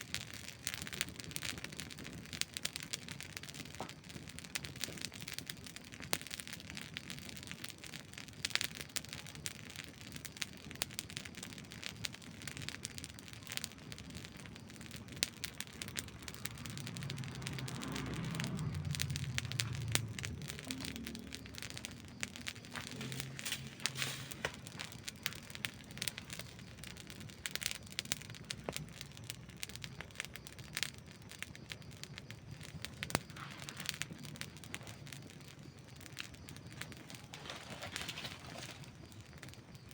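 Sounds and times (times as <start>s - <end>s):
campfire crackling and popping: 0.0s - 39.9s
low rumble: 16.0s - 26.1s.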